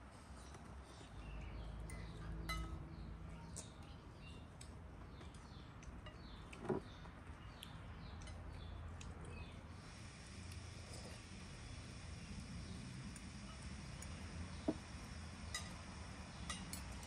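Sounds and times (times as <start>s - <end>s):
small birds chirping: 0.3s - 17.0s.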